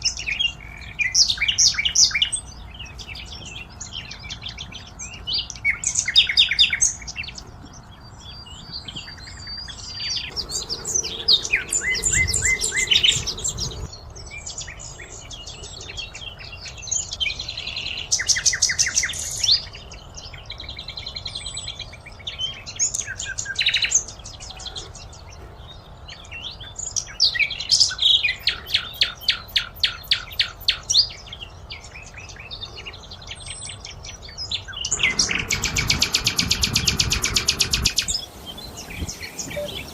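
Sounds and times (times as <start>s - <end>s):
songbirds singing: 0.0s - 39.9s
low rumble: 10.1s - 13.9s, 34.9s - 39.8s.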